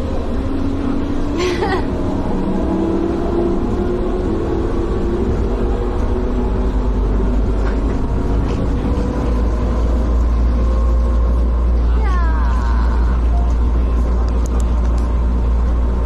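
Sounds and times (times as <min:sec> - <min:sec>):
vehicle rumble from on board: 0:00.0 - 0:16.0.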